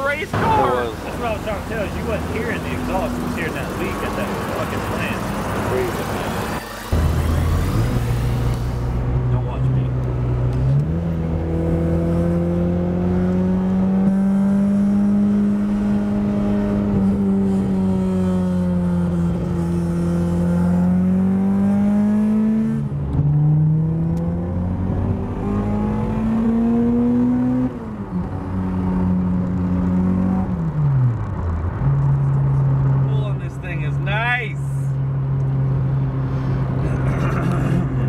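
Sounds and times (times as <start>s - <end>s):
car engine revving through gears: 0.8s - 33.2s.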